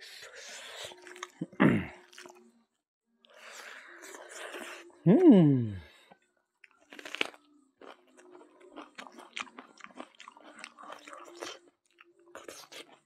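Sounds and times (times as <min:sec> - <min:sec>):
wet mouth chewing: 0:00.5 - 0:02.4, 0:06.6 - 0:13.0.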